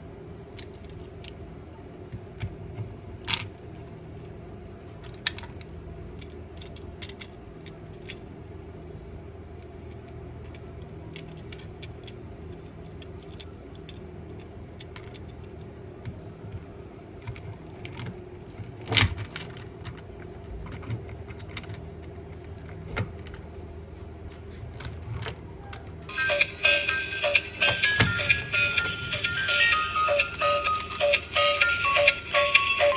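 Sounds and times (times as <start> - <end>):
clicks of small toy parts: 0.5 - 1.5, 5.0 - 8.3, 9.6 - 18.2
music: 26.1 - 32.9
steady low hum: 26.1 - 32.9.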